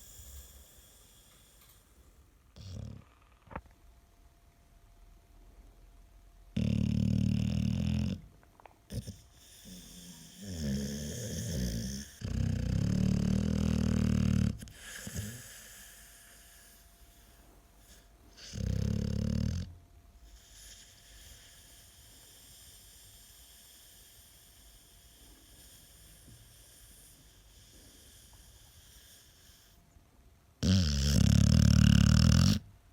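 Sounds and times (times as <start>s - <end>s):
dog snoring: 2.6s - 3.3s, 6.5s - 29.8s, 30.6s - 32.7s.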